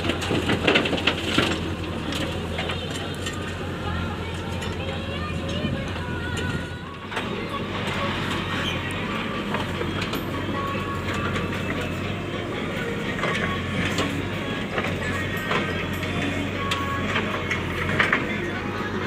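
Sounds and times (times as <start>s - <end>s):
heavy machinery droning: 0.0s - 19.0s
metallic clanks and knocks: 12.8s - 18.6s.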